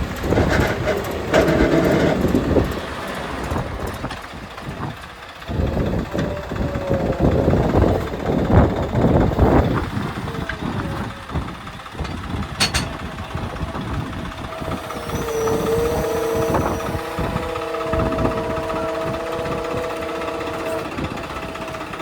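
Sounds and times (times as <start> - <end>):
heavy diesel engine running: 0.0 - 22.0
steady machine whine: 0.0 - 22.0
sharp metallic clank: 12.6 - 13.1.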